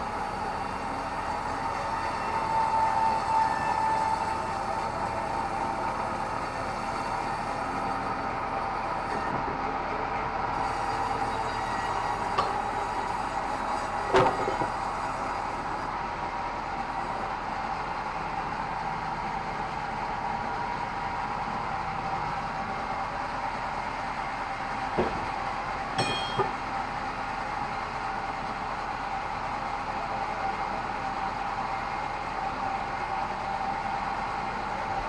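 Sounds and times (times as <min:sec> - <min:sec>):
band saw whining: 0:26.0 - 0:26.7.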